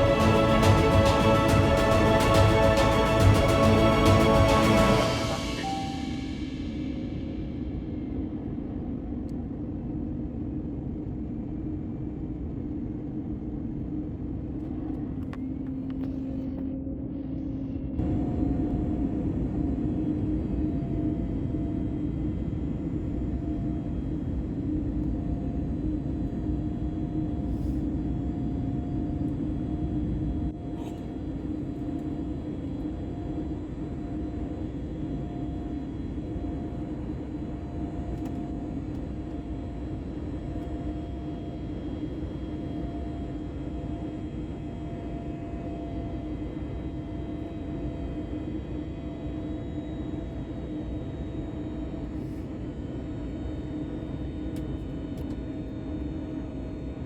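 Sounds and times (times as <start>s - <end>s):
pulsing high tone: 0.0s - 7.2s.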